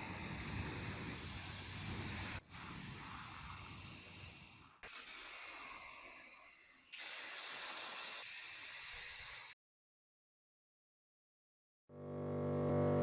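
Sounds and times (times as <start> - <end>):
pressurised spray hissing: 0.0 - 9.6.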